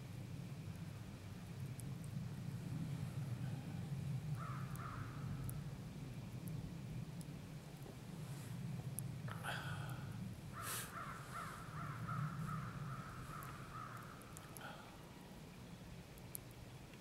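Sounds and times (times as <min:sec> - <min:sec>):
steady low rumble: 0:00.0 - 0:17.0
bird calling: 0:10.5 - 0:15.0.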